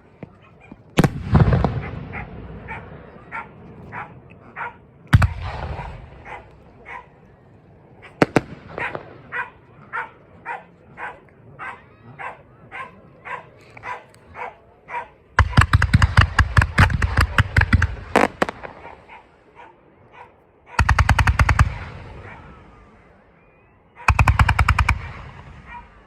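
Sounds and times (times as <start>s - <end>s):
fireworks crackling bangs: 0.0s - 3.9s, 5.1s - 6.9s, 8.1s - 9.8s, 15.4s - 19.2s
dog barking: 0.2s - 0.8s, 1.8s - 4.9s, 5.8s - 7.3s, 8.0s - 15.2s, 18.7s - 20.8s, 22.2s - 22.6s, 25.6s - 26.0s.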